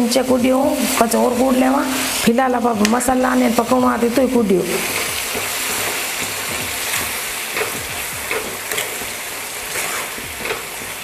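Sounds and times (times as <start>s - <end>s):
food sizzling in a pan: 0.0s - 11.0s
metal ladle scraping a pan: 4.8s - 10.9s.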